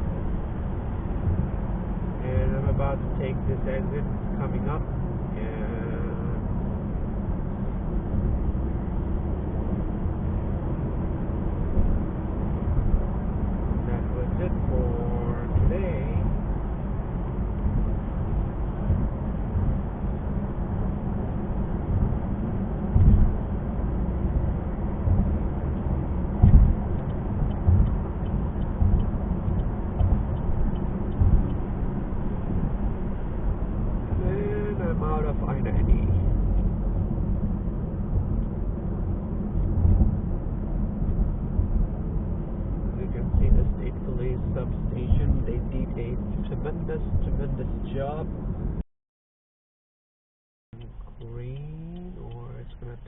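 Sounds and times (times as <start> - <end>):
car engine and tyres on highway: 0.0 - 48.8, 50.8 - 53.0
thumps: 22.9 - 23.4, 26.4 - 28.0.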